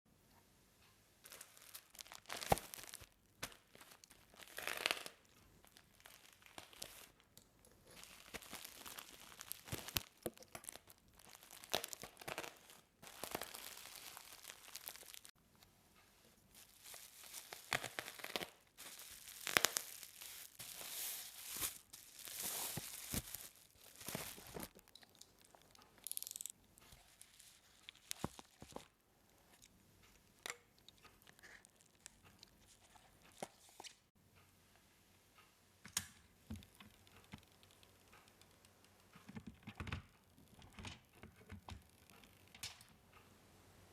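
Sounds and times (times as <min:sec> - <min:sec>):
plastic and paper crinkling: 0:01.2 - 0:15.4, 0:16.5 - 0:29.6.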